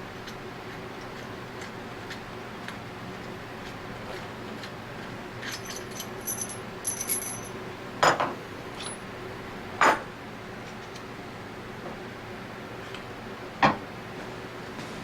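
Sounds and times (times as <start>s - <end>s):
metal tools clinking: 5.4s - 7.6s, 8.8s - 9.0s.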